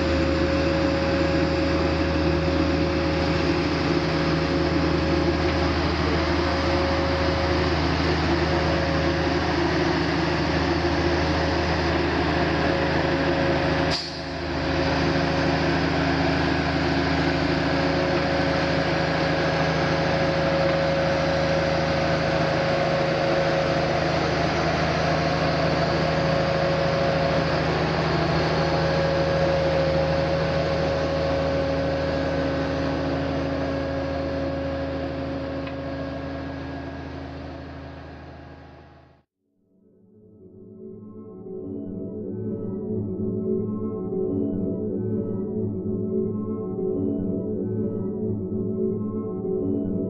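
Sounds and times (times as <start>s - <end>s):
heavy vehicle engine droning: 0.0s - 39.2s.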